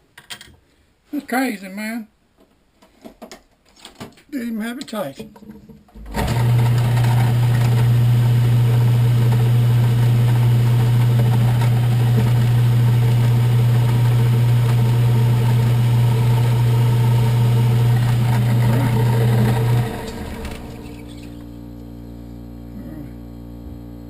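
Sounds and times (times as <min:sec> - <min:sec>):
electric motor humming: 0:06.0 - 0:24.0.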